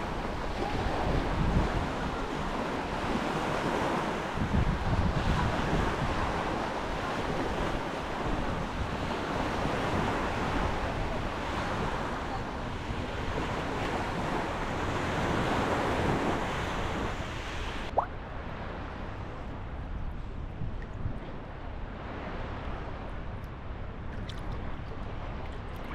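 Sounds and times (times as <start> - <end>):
wind buffeting microphone: 0.0 - 18.4, 19.1 - 25.9
sea waves washing onto beach: 0.0 - 19.4.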